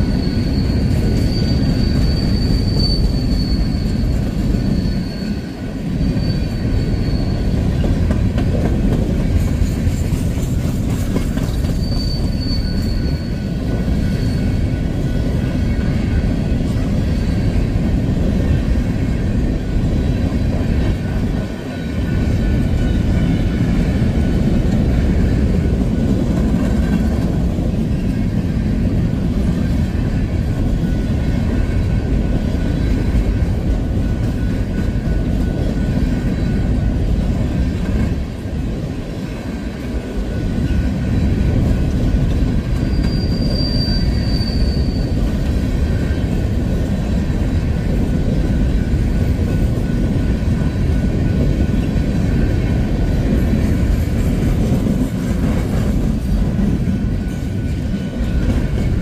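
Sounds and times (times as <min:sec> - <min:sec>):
high wheel squeal: 0:00.0 - 0:08.0, 0:10.8 - 0:19.2, 0:42.6 - 0:46.3
freight cars rumbling and rattling: 0:00.0 - 0:59.0.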